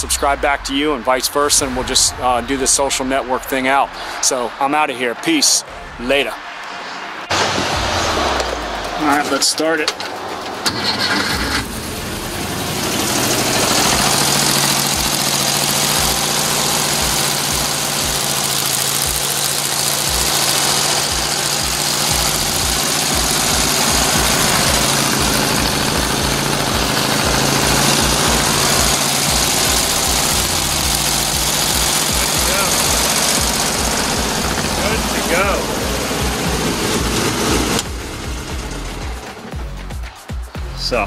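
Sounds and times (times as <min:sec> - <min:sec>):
engine cranking and starting: 0:07.3 - 0:40.0
engine running steadily: 0:07.4 - 0:40.0.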